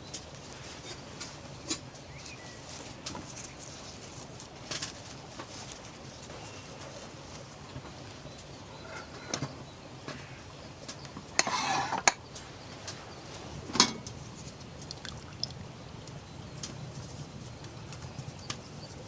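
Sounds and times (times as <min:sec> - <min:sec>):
camp cookware clinking: 0:13.7 - 0:15.6
liquid being poured: 0:14.8 - 0:15.7.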